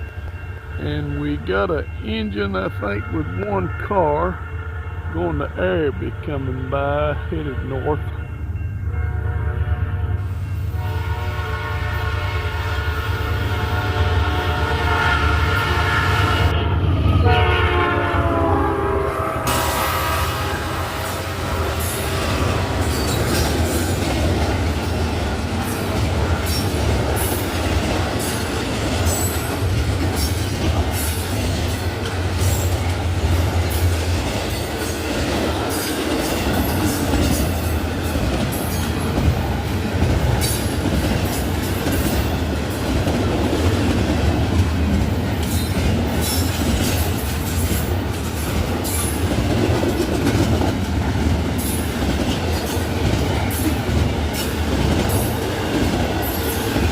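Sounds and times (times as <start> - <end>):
freight train rumbling past: 0.0 - 56.9
train wheels clicking on track: 19.5 - 56.9.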